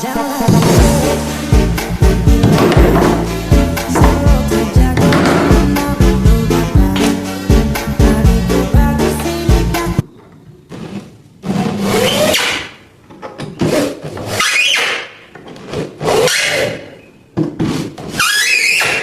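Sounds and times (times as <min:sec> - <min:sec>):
backing music: 0:00.0 - 0:10.0
hand tool scraping wood: 0:17.4 - 0:19.0.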